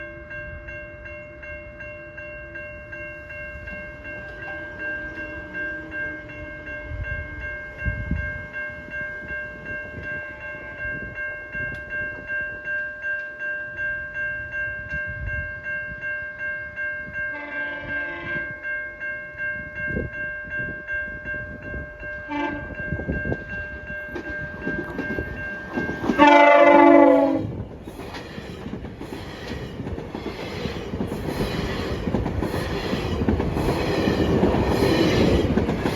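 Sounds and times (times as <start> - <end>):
pulsing ringing tone: 0.0 - 27.7
train approaching: 0.0 - 35.9
train horn blasts: 17.3 - 18.6, 22.2 - 22.8, 26.0 - 27.6.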